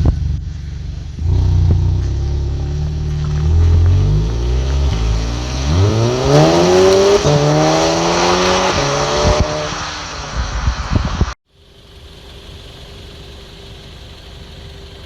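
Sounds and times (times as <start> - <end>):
car engine accelerating: 0.0 - 11.4.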